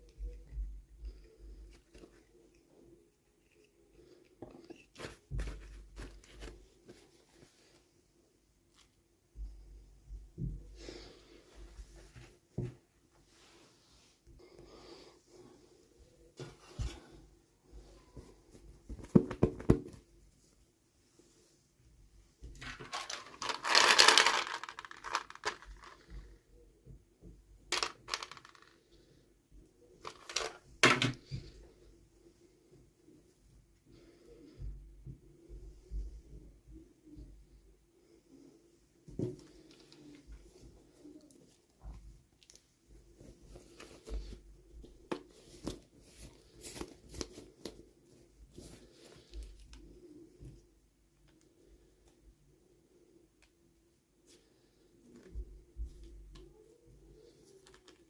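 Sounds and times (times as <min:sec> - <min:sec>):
packaging crinkling and tearing: 0:22.6 - 0:26.0
plastic toy pieces clattering: 0:22.6 - 0:26.0, 0:27.7 - 0:28.8, 0:30.1 - 0:31.1.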